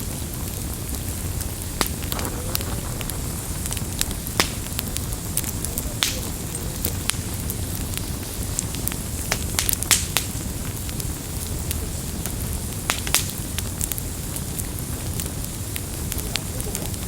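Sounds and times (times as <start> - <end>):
burning wood crackling: 0.0 - 17.0
low rumble of flames: 0.0 - 17.0.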